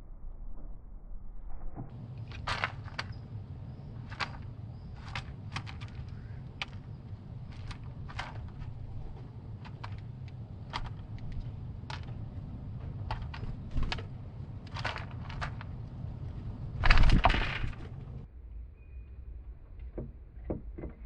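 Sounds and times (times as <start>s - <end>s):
low rumble: 0.0s - 20.4s
scuffling: 1.9s - 18.3s.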